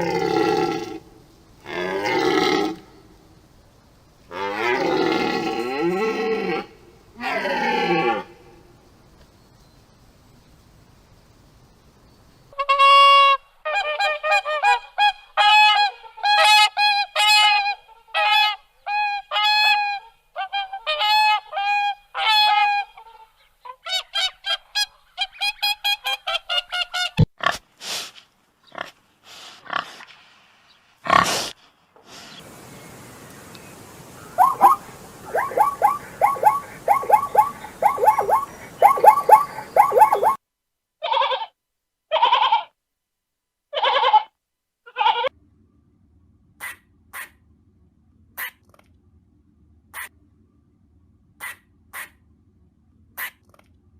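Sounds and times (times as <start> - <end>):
background noise: 0.0 - 53.9
fast bird calls: 32.3 - 40.4
waterfowl honking: 34.0 - 40.4.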